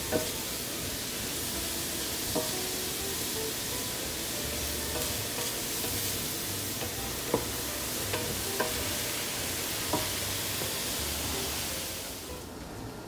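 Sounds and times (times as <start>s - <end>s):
meat and onions sizzling: 0.0s - 12.9s.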